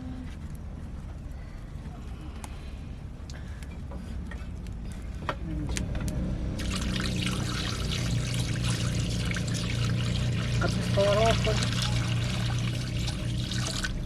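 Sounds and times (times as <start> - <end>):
low steady rumble: 0.0 - 14.0
liquid pouring: 6.6 - 14.0.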